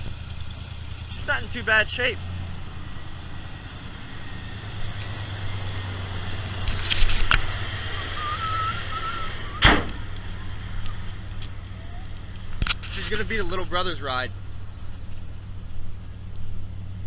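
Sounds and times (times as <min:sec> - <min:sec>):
car engine idling: 0:00.0 - 0:17.0
sharp thump: 0:09.4 - 0:10.2.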